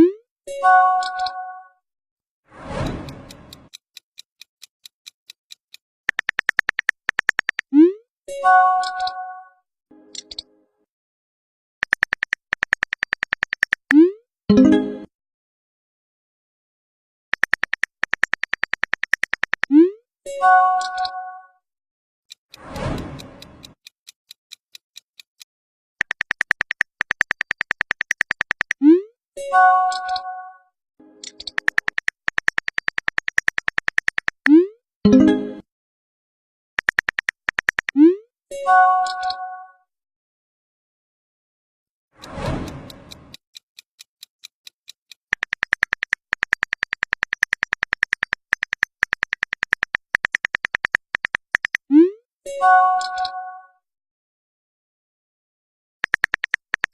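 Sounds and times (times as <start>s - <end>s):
soft even ticks: 2.7s - 8.0s, 22.5s - 28.8s, 31.2s - 34.6s, 42.2s - 51.9s, 56.0s - 56.9s
faint ticks: 22.5s - 28.8s.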